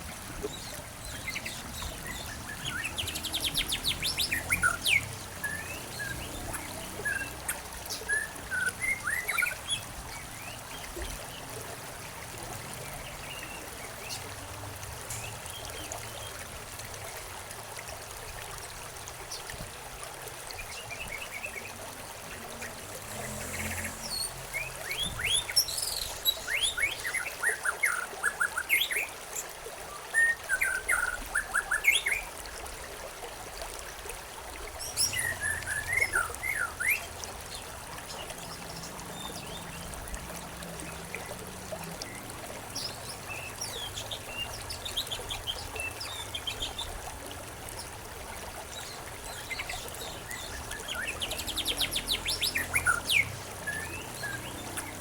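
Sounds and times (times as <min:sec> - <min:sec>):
birds chirping and twittering: 0:00.0 - 0:11.5, 0:20.6 - 0:29.1, 0:34.8 - 0:55.0
stream water trickling: 0:00.0 - 0:55.0.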